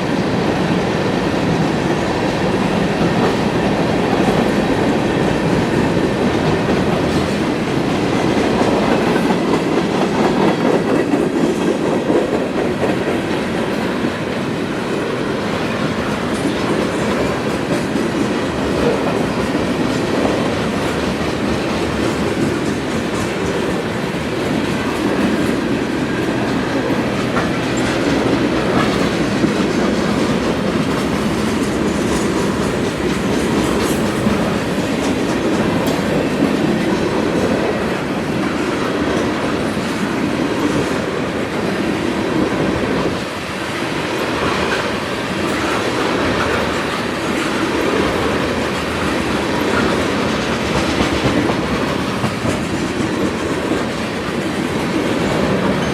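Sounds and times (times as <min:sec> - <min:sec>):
freight train rolling on rails: 0:00.0 - 0:55.9.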